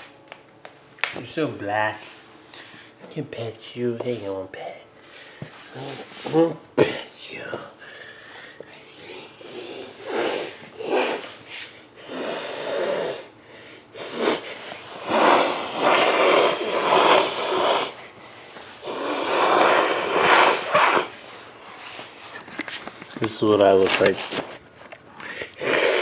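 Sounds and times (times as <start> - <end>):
breathy wheezing: 7.8 - 21.2, 25.2 - 26.0.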